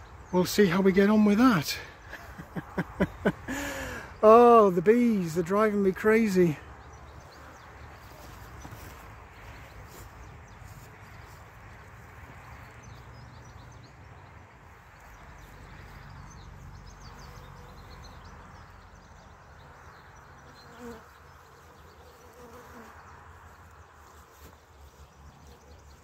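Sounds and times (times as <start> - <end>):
bees buzzing: 14.7 - 26.0.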